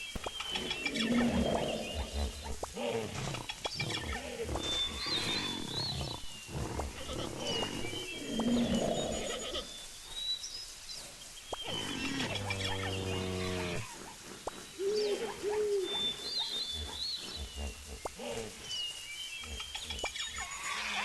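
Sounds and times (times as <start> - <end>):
birds whistling: 11.4 - 21.0.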